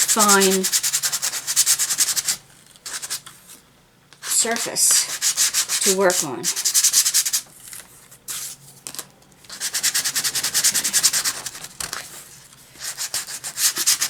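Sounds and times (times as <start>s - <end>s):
sandpaper rubbing on wood: 0.0s - 3.1s, 4.2s - 7.4s, 9.5s - 12.0s, 12.8s - 14.0s.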